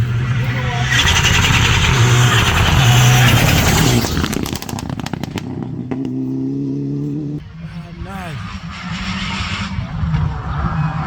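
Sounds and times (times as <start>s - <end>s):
rally car engine passing: 0.0s - 11.0s
sharp cracks: 0.9s - 5.7s.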